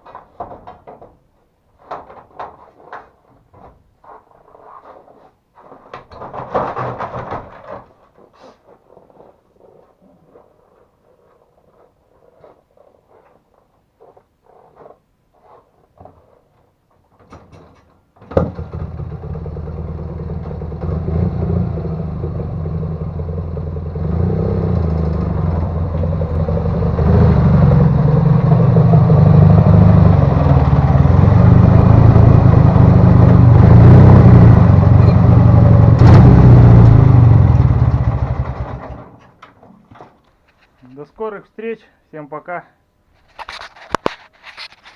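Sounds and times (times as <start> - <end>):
faint clicks and rustles: 0.0 - 18.0, 39.2 - 41.1, 43.1 - 44.9
motorcycle engine starting: 18.2 - 39.3.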